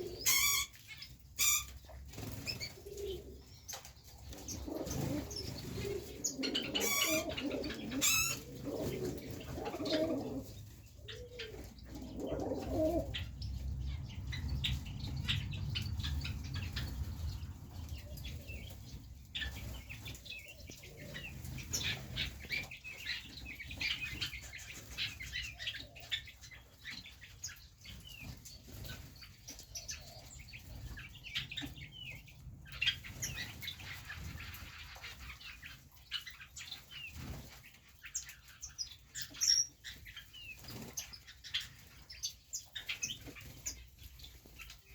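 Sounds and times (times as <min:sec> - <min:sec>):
pigeons cooing: 0:00.0 - 0:00.8, 0:01.4 - 0:27.0
small birds chirping: 0:00.0 - 0:44.9.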